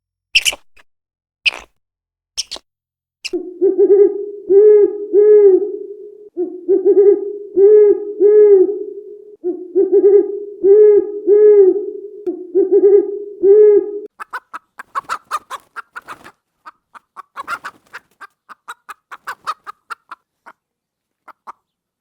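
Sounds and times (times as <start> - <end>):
bird hooting calls: 3.3 - 14.1
steady low tone: 3.4 - 14.1.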